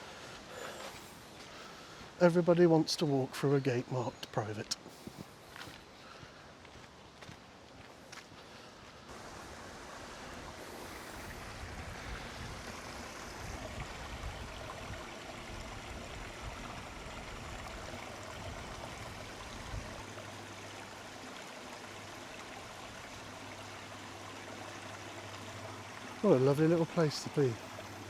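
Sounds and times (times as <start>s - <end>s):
stream water rushing: 9.0s - 28.0s.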